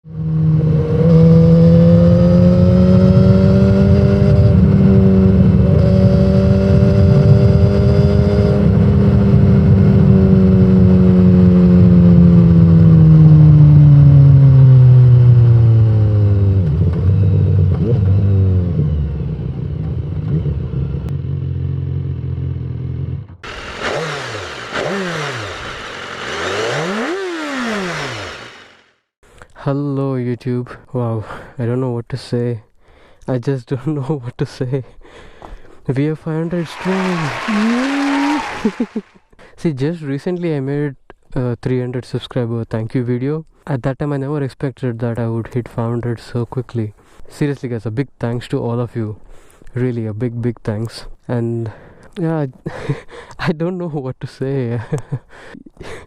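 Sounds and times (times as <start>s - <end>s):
motorcycle engine at high revs: 0.0s - 19.0s, 20.3s - 29.0s, 36.5s - 39.1s.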